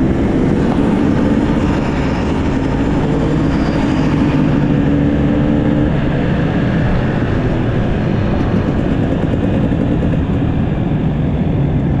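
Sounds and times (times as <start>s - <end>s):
motorcycle engine running: 0.0s - 11.2s
heavy rushing noise: 0.0s - 12.0s.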